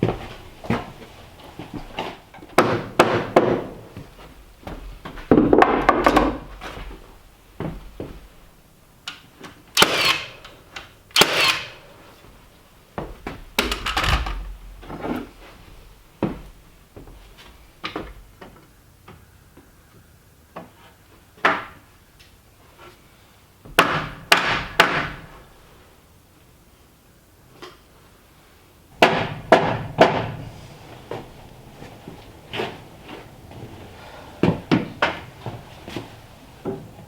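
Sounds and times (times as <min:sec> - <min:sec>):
wooden knocks and clunks: 0:00.0 - 0:08.3, 0:29.0 - 0:37.0
wood scraping: 0:29.0 - 0:37.0.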